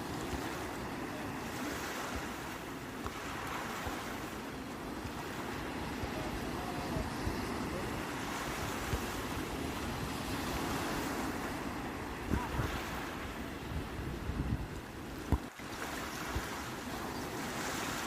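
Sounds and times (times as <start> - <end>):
sea waves washing onto shore: 0.0 - 18.0
wind thumps on microphone: 13.7 - 15.6.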